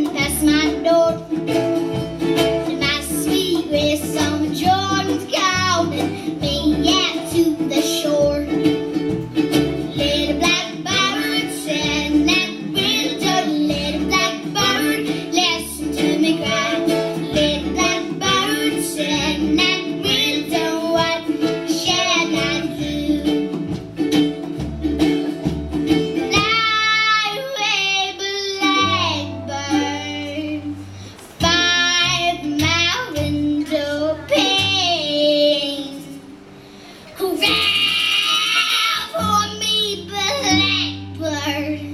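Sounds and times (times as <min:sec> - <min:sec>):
girl singing: 0:00.0 - 0:01.6, 0:02.4 - 0:08.9, 0:09.8 - 0:23.7, 0:26.2 - 0:36.3, 0:37.2 - 0:41.9
plucked strings: 0:00.0 - 0:41.9.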